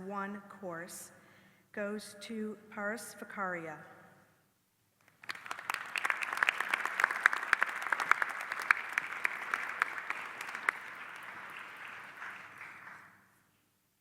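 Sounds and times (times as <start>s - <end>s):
audience applauding: 5.1s - 13.3s.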